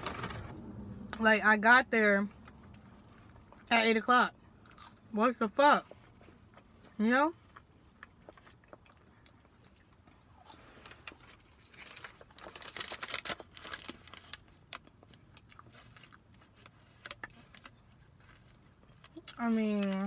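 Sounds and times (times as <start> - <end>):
close-up chewing: 5.9 - 20.0
food wrapper crinkling: 10.5 - 19.9.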